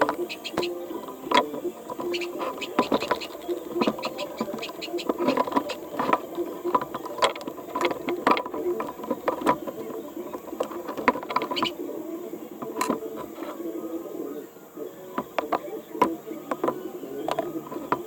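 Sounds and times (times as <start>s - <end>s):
small hard parts clattering: 0.0s - 11.8s.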